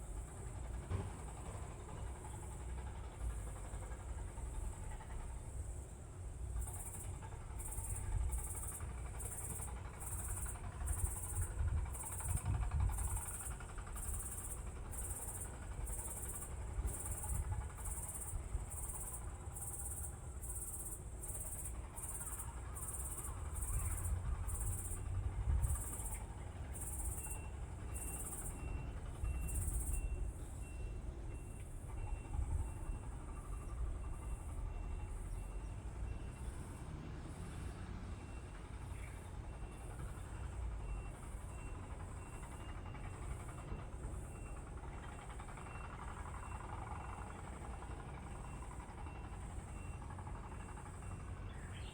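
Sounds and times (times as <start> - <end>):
constant low rumble: 0.0 - 36.8
lower pulsing insect call: 0.0 - 51.9
insects chirping: 6.6 - 37.5.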